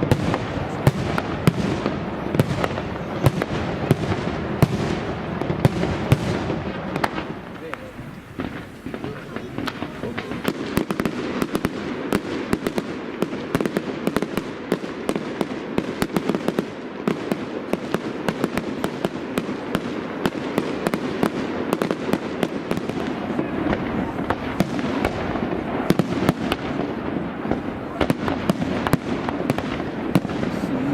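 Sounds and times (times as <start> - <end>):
distant explosions rumbling: 0.0 - 30.9
fireworks bangs and cracks: 0.0 - 30.9.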